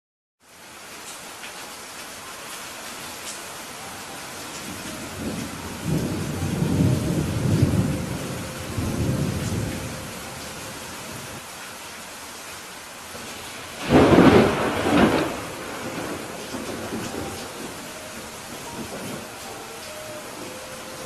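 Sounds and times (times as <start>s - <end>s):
steady rain: 0.4s - 21.0s
rolling thunder: 4.7s - 11.4s, 13.7s - 19.5s.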